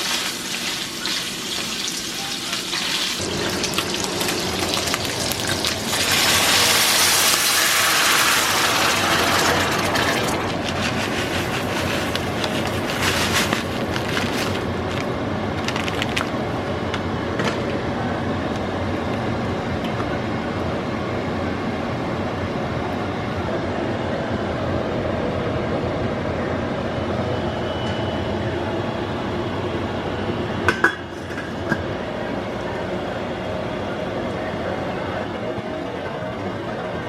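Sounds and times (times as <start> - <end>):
water rushing down channel: 3.2 - 12.4.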